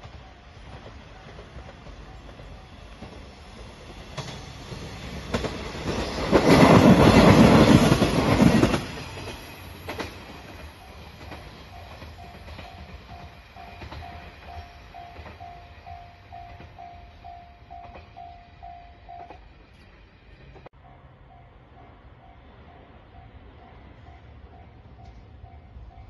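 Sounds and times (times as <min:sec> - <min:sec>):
diesel train passing: 0:00.0 - 0:26.0
level-crossing bell ringing: 0:10.8 - 0:19.4.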